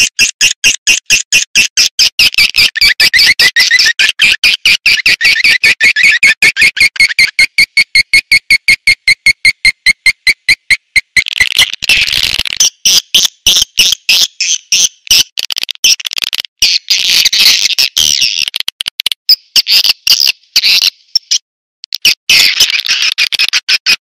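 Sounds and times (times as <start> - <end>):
swiftlets chirping and twittering: 0.0 - 16.0.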